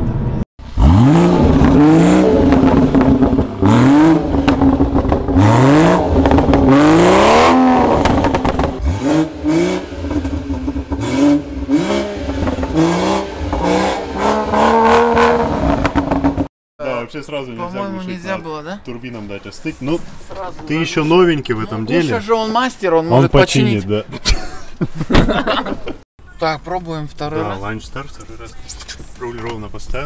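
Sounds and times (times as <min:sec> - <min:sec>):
car engine idling and revving: 0:00.0 - 0:16.5.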